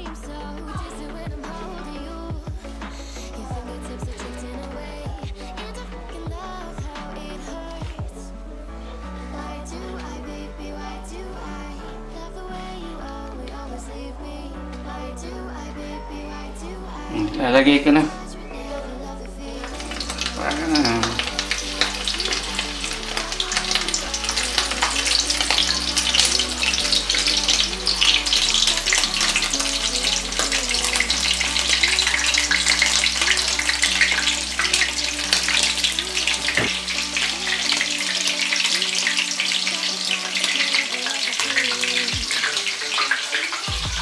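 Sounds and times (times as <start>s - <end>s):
spring rolls sizzling in oil: 19.6s - 43.8s.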